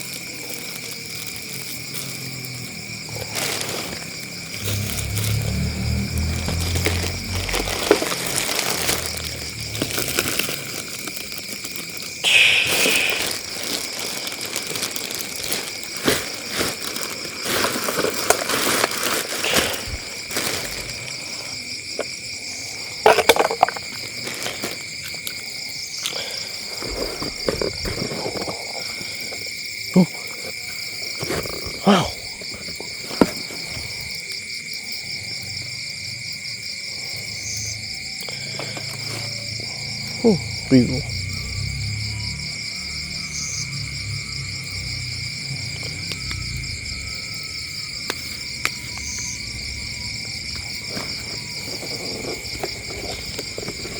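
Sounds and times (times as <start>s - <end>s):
crickets trilling: 0.0s - 53.9s.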